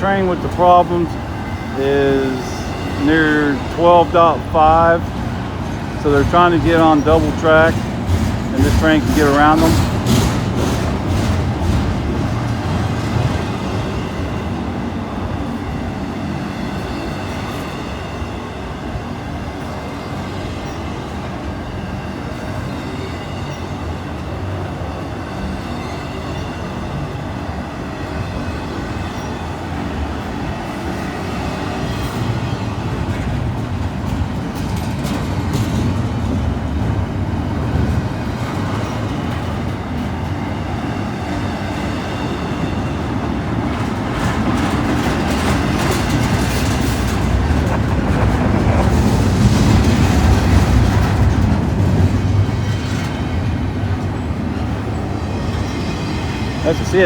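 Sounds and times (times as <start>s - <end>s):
wheels clicking over rail joints: 0.0s - 14.2s, 30.3s - 56.7s
freight train wheels rumbling: 0.0s - 57.0s.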